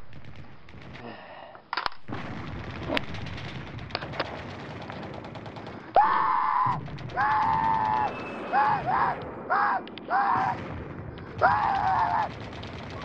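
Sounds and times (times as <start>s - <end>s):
crackling gunfire-like pops: 0.0s - 1.2s, 1.8s - 6.0s, 6.6s - 13.0s
person screaming: 6.0s - 10.6s, 11.4s - 12.3s.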